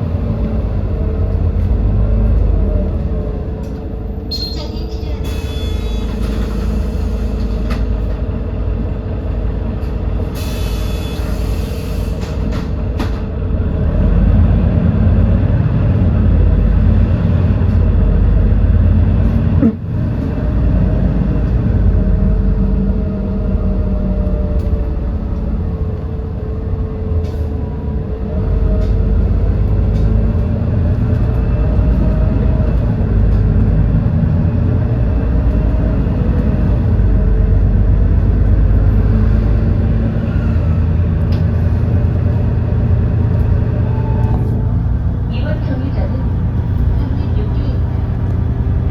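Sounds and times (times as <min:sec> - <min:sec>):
bus engine running: 0:00.0 - 0:48.9.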